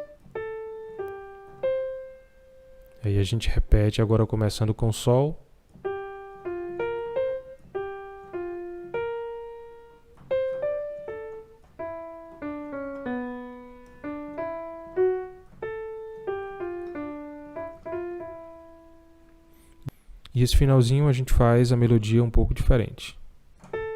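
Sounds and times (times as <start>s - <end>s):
piano bossa nova melody: 0.0s - 3.1s, 5.7s - 19.9s, 23.6s - 23.9s.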